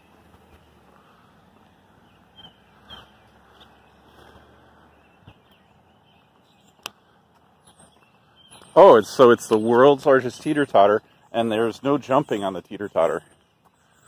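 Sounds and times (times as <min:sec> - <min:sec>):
faint bird chirps: 0:00.0 - 0:10.2.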